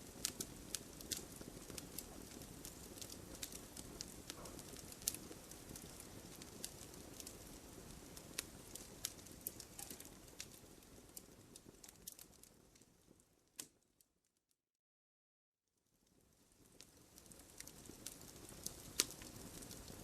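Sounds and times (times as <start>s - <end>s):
sharp pops of burning logs: 0.0s - 12.5s, 16.8s - 20.0s
low rush of flames: 0.0s - 13.3s, 16.2s - 20.0s
wood fire crackling: 0.0s - 14.0s, 15.8s - 20.0s.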